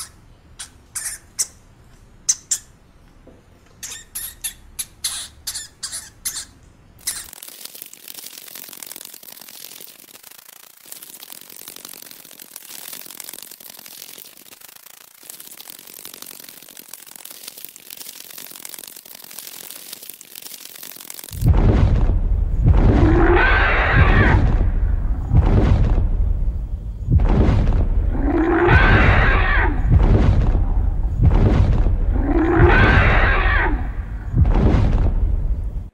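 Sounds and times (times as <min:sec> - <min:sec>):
pika squeaking calls: 0:00.0 - 0:02.8, 0:03.8 - 0:07.4
fast crackle of clicks: 0:05.9 - 0:21.5
heavy low thuds: 0:21.5 - 0:28.2, 0:29.8 - 0:33.0, 0:34.0 - 0:35.9
growling dinosaur roar: 0:28.1 - 0:29.9, 0:32.1 - 0:34.2.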